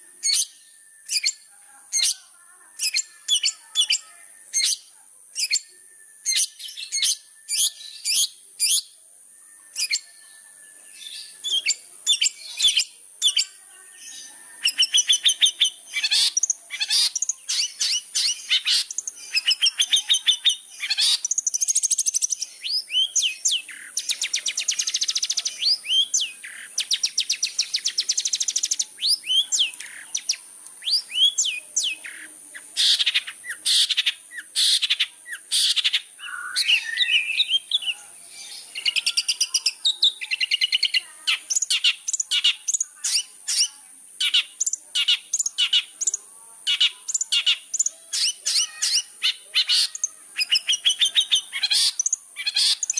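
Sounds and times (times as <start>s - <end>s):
shrike chattering song: 9.7s - 52.9s.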